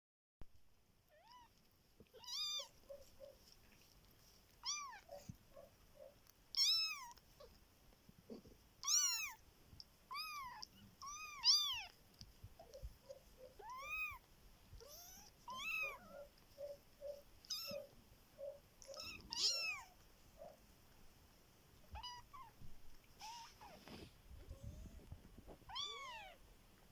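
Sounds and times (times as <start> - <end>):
kittens mewing: 8.3 - 9.4, 12.6 - 20.6, 21.9 - 22.6, 23.2 - 24.0
soft short squeaks: 14.8 - 17.9.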